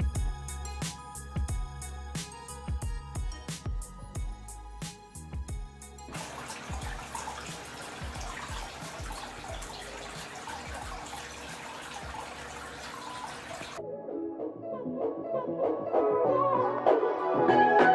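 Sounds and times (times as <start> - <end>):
water running and splashing: 6.1 - 13.8.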